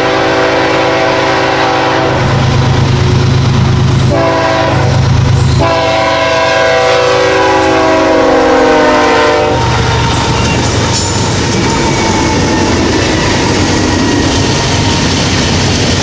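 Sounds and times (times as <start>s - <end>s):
locomotive air horn: 0.0s - 2.5s, 4.0s - 13.8s
passing train rumble: 0.0s - 16.0s.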